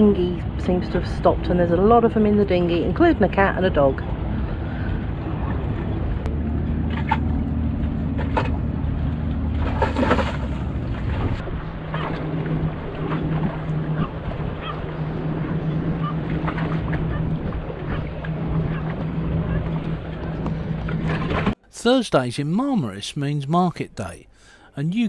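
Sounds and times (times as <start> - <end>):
boat motor running: 0.0 - 21.6
water noise: 0.0 - 25.0
wind noise: 2.8 - 21.6.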